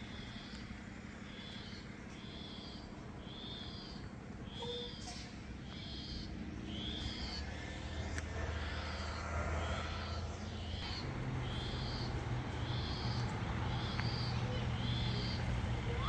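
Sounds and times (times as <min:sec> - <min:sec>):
bird whistling high note: 0:04.6 - 0:05.2.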